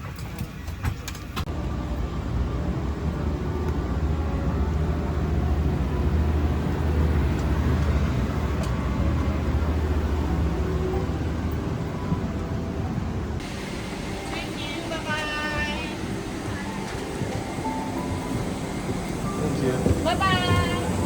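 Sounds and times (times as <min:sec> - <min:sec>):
aircraft cabin low rumble: 0:00.0 - 0:21.0.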